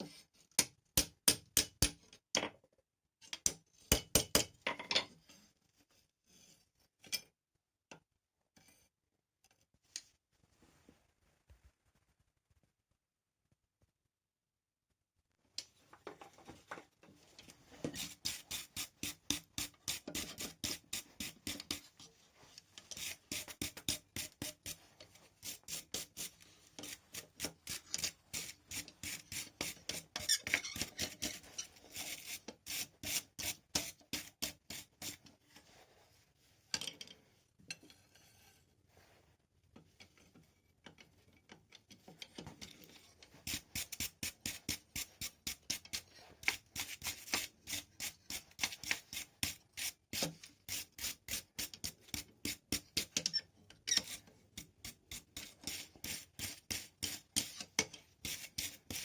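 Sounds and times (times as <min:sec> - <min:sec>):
hand tool scraping steel: 0:17.4 - 0:35.7, 0:42.0 - 0:59.0.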